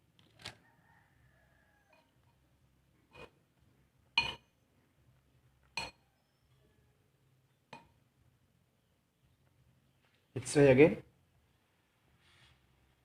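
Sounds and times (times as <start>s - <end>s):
utensil clinking cookware: 4.2s - 4.6s, 5.8s - 6.0s.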